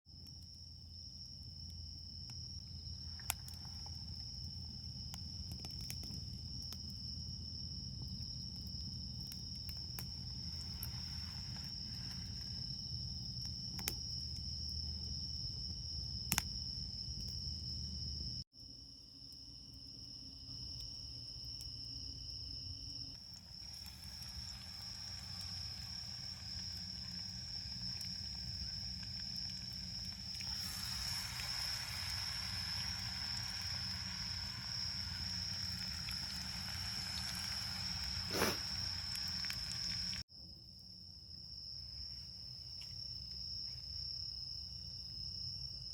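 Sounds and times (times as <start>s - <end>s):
campfire crackling: 0.1s - 17.7s, 20.6s - 40.2s
crickets trilling: 0.1s - 45.9s.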